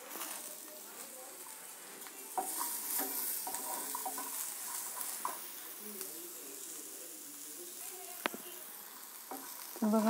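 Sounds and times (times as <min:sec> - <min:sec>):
vegetables sizzling in oil: 0:00.0 - 0:10.0
spatula scraping and tapping pan: 0:01.4 - 0:06.1, 0:09.1 - 0:09.8.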